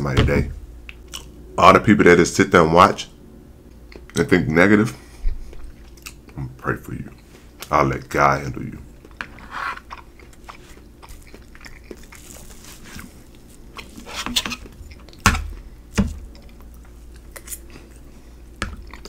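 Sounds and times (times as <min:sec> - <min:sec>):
person chewing: 0:00.8 - 0:01.4, 0:03.7 - 0:04.2, 0:05.0 - 0:06.4, 0:08.8 - 0:19.0
fork scraping a plate: 0:09.3 - 0:09.8, 0:13.9 - 0:14.7.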